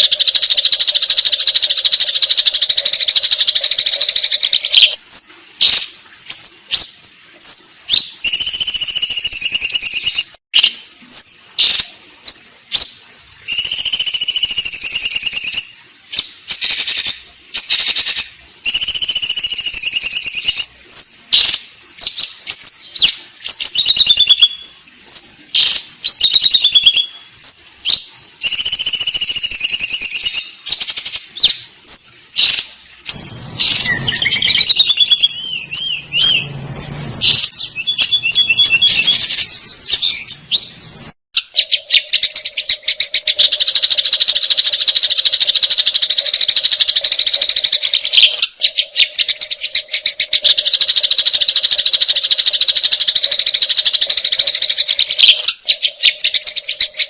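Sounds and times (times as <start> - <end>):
sparrows chirping: 22.1 - 44.4.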